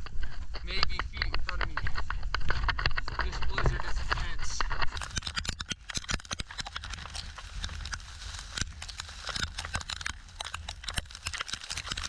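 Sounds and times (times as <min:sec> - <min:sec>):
footsteps crunching in snow: 0:05.0 - 0:12.0.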